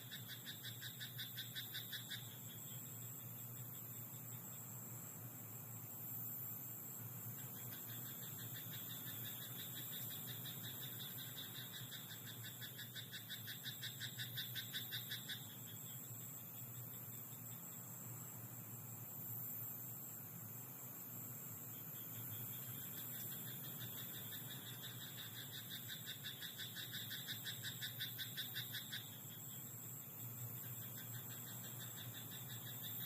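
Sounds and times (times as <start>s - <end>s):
frog croaking: 0.0s - 2.4s, 7.6s - 15.7s, 22.2s - 29.5s
night background: 0.0s - 33.0s.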